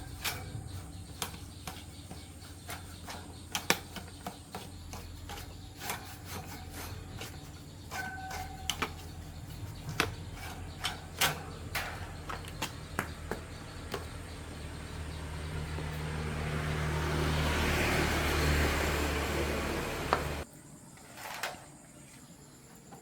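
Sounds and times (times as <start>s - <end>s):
low mechanical hum: 0.0s - 21.6s
sharp clicks and knocks: 9.8s - 14.8s.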